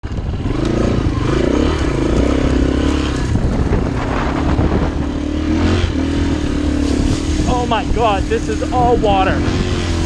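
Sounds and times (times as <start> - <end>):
vehicle engine under load: 0.0 - 10.0.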